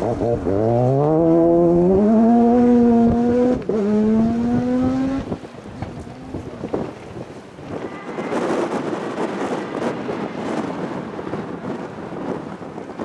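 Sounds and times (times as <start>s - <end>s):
rally car engine accelerating: 0.0s - 6.9s.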